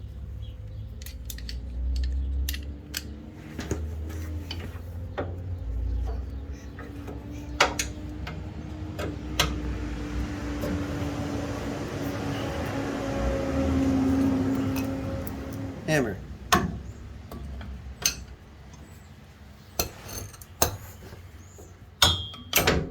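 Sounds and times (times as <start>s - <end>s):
hand tools clinking against metal: 0.7s - 4.7s, 14.0s - 16.7s, 17.3s - 18.4s, 19.7s - 21.1s.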